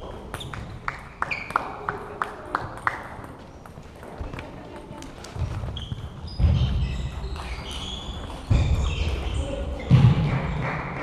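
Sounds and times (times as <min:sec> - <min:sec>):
shoe squeaks: 0:00.4 - 0:01.6, 0:05.2 - 0:10.0.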